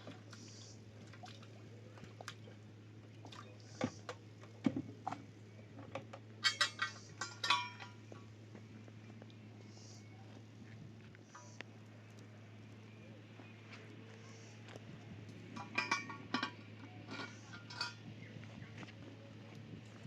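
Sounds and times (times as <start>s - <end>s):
steady low hum: 0.0s - 20.0s
ringing metallic clinks: 6.4s - 8.0s.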